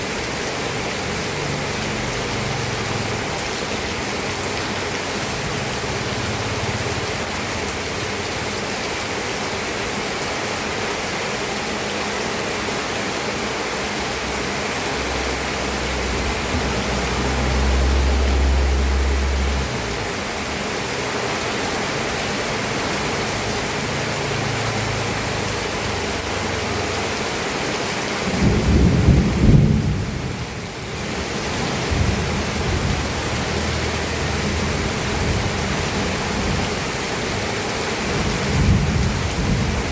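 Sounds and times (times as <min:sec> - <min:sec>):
steady rain falling: 0:00.0 - 0:39.9
thunder rumbling: 0:15.7 - 0:19.8, 0:28.2 - 0:36.8, 0:38.0 - 0:39.9.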